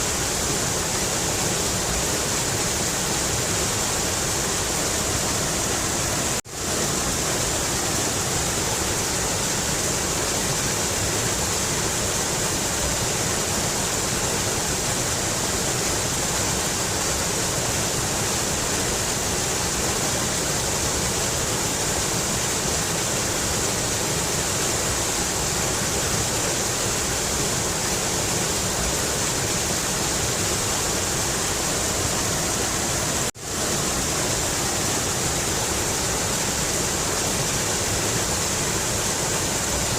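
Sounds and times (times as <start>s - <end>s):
mountain river rushing: 0.0s - 39.9s.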